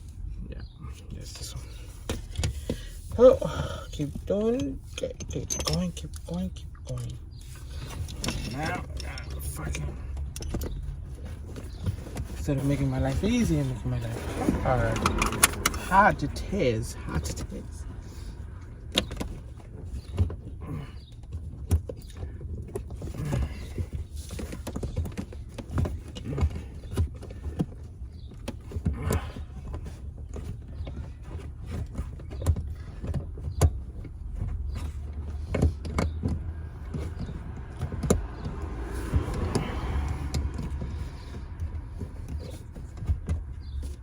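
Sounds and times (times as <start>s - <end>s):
steady low hum: 0.0s - 25.5s
tools clicking and knocking: 2.0s - 18.1s, 18.9s - 44.0s.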